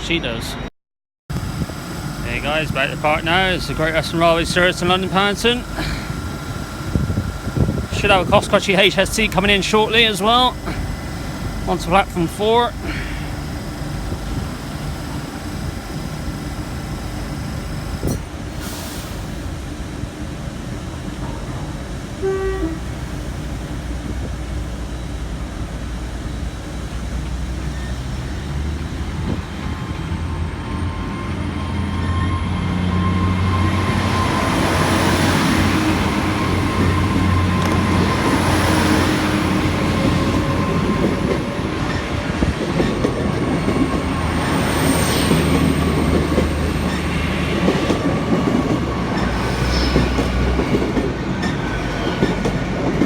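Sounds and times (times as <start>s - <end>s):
high whine rising in pitch: 1.3s - 18.4s, 22.0s - 50.9s
train engines humming: 1.3s - 53.0s.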